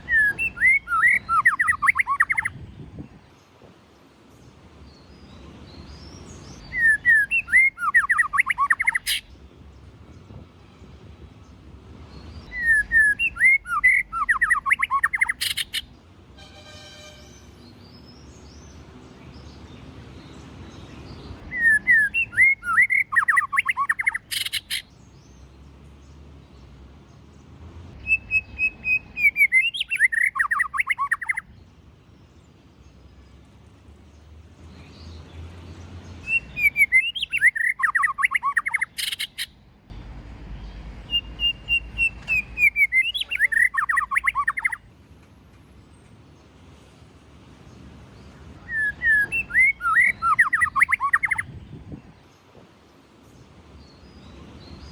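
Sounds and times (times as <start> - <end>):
bird singing whistled phrases: 0.0 - 2.5, 6.6 - 9.2, 12.5 - 15.9, 21.5 - 24.8, 28.0 - 31.5, 36.2 - 39.5, 41.1 - 44.8, 48.6 - 51.5.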